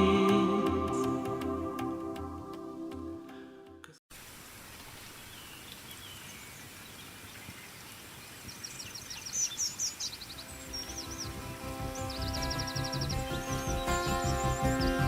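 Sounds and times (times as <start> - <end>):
soft instrumental music: 0.0 - 4.0, 10.4 - 15.0
background hiss: 4.1 - 15.0
songbirds trilling: 4.6 - 15.0.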